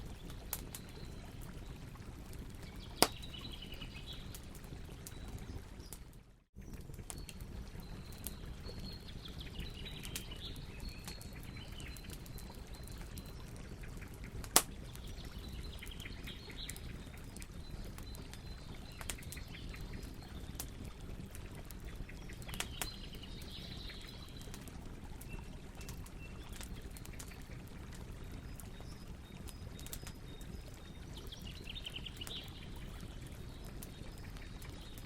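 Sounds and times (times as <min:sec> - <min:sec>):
birds chirping faintly: 0:00.0 - 0:35.0
campfire crackling: 0:00.0 - 0:35.0
loud sharp pop from fire: 0:14.5 - 0:14.8.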